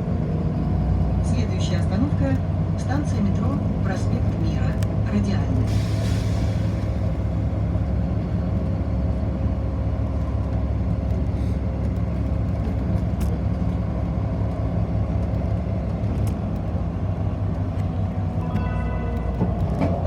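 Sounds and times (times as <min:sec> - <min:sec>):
bus engine rumble: 0:00.0 - 0:20.0.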